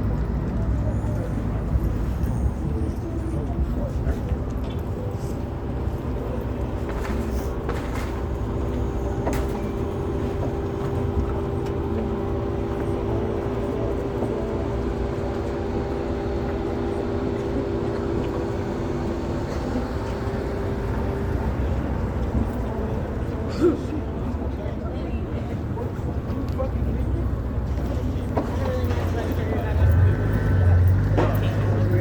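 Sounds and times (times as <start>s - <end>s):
vehicle engine and road rumble: 0.0s - 32.0s.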